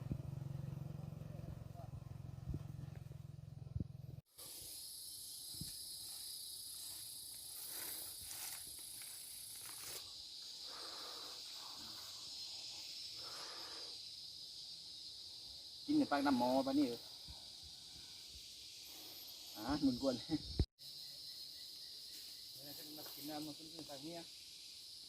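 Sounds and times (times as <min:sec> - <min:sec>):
engine hum: 0:00.0 - 0:04.2
insects droning: 0:00.0 - 0:25.0
high-pitched insect buzz: 0:04.2 - 0:25.0.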